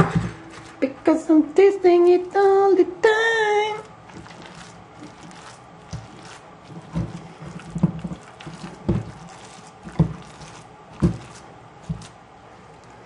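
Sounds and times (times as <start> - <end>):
wet squelching of kneaded meat: 3.6 - 13.0.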